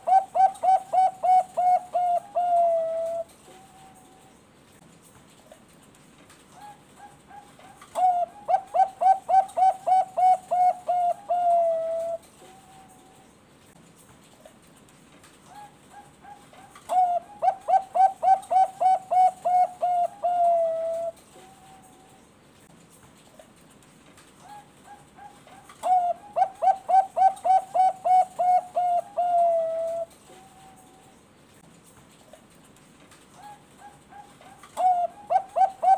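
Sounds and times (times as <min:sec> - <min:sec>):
dove cooing: 0:00.0 - 0:04.2, 0:06.6 - 0:13.1, 0:15.5 - 0:22.2, 0:24.4 - 0:31.2, 0:33.4 - 0:35.9.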